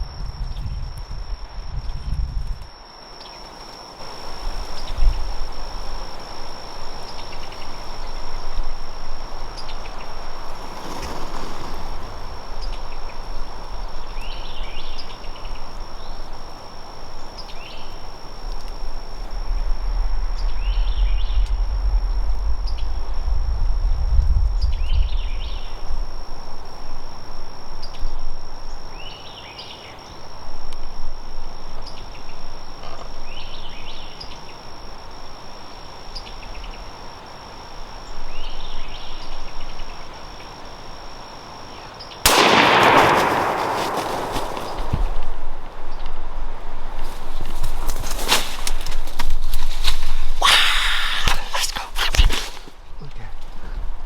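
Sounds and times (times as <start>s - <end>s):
low wind rumble on microphone: 0.0s - 2.8s, 4.0s - 29.1s, 42.3s - 50.4s
high-pitched insect drone: 0.0s - 52.6s.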